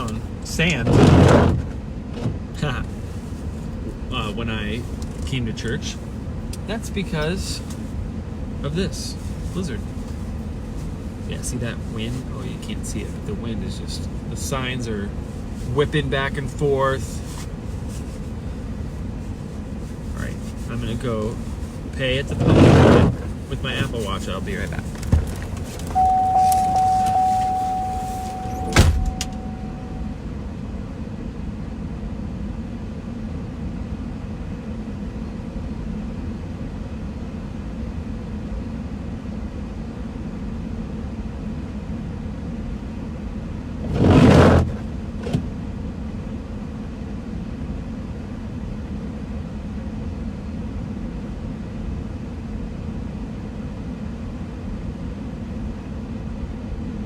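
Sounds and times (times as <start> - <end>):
car engine idling: 23.1 - 30.2
car door shutting: 24.9 - 30.0
steady tone: 26.0 - 30.3.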